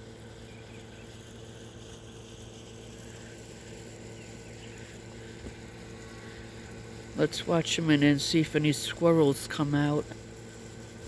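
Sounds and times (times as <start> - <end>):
low mechanical hum: 0.0 - 11.0
faint bird chirps: 0.4 - 1.2.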